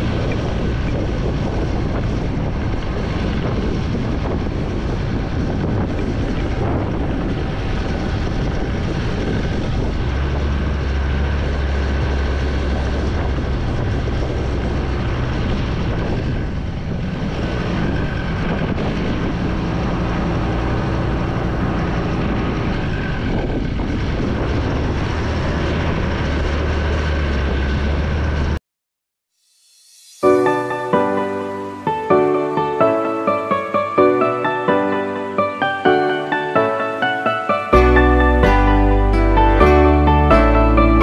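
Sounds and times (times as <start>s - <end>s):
wind rushing over microphone: 0.0s - 28.6s.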